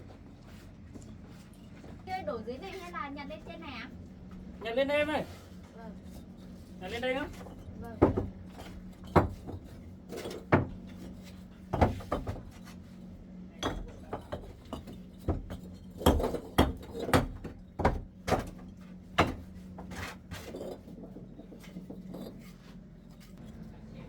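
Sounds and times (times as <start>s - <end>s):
bricks knocking and clinking: 7.1s - 12.8s, 13.6s - 23.6s.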